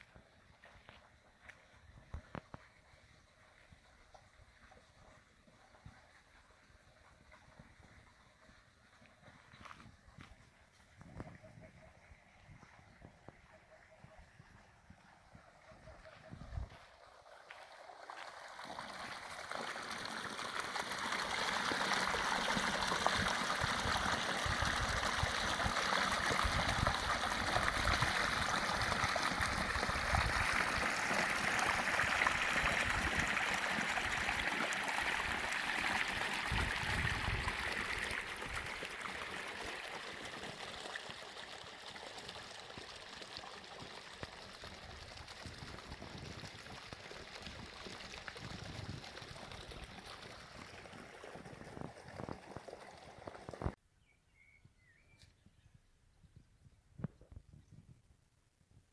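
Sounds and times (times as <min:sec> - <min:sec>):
stream water rushing: 0:17.5 - 0:42.6.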